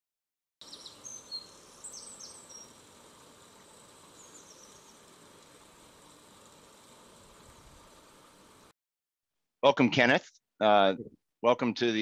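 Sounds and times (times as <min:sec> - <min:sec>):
faint bird chirps: 0:00.6 - 0:02.8, 0:03.5 - 0:05.1
soft outdoor hiss: 0:00.6 - 0:08.7.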